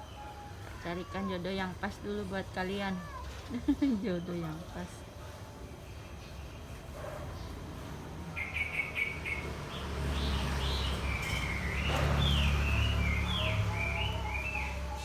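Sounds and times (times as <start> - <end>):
small birds chirping: 5.8 - 15.0.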